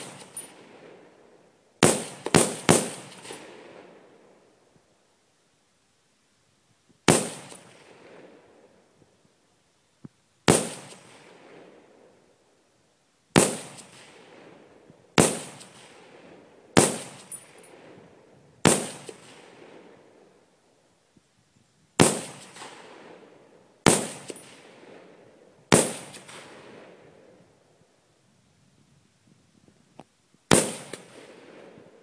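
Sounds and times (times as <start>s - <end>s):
rifle shots with echo: 0.0s - 1.2s, 1.8s - 4.2s, 7.0s - 8.7s, 10.4s - 12.2s, 13.3s - 20.4s, 22.0s - 27.4s, 30.5s - 32.0s.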